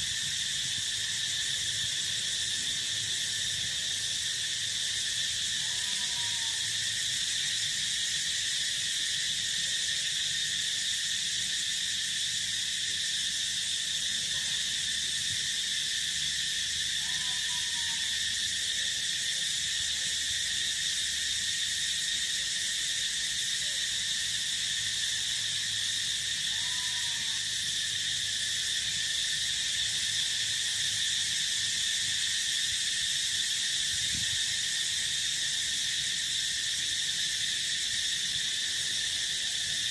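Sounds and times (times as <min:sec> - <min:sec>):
crickets and insects chirring: 0:00.0 - 0:39.9
animal calls: 0:17.0 - 0:18.1, 0:26.5 - 0:27.4.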